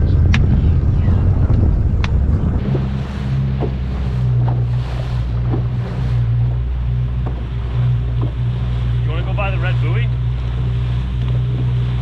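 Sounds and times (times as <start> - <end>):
boat motor humming: 0.0 - 12.0
water around hull: 0.0 - 12.0
wind on microphone: 0.0 - 12.0
light knocks: 8.1 - 8.4.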